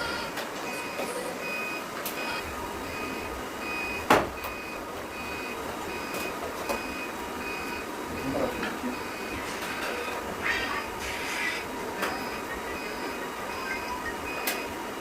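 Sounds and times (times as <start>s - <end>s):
electronic beeper beeping: 12.1s - 14.7s.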